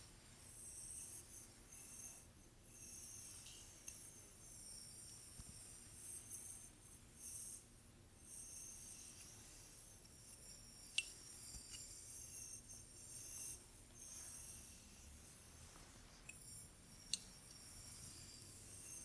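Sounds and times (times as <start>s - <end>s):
brushing strokes through hair: 14.1s - 16.3s.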